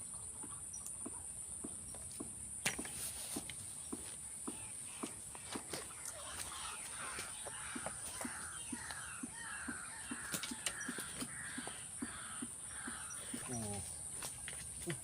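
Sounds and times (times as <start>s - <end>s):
animal rasping call: 5.9s - 13.8s.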